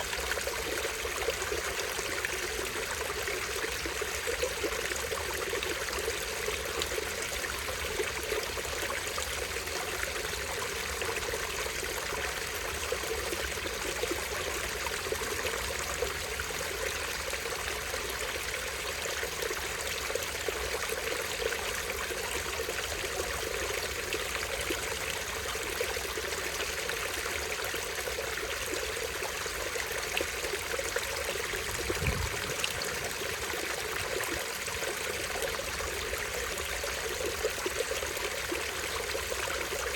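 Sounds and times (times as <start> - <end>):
stream over small waterfall: 0.0 - 39.9.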